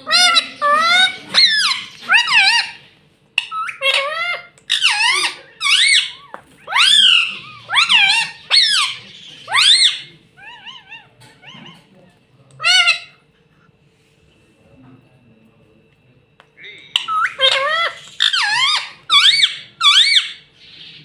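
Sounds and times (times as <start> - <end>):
parakeet high-pitched calls: 0.0 - 11.9, 12.6 - 13.2, 16.9 - 21.0.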